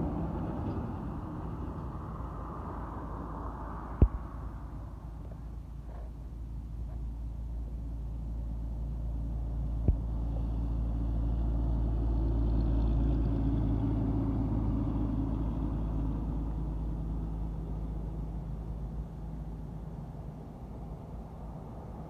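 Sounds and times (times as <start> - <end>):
truck engine passing by: 0.0 - 5.2.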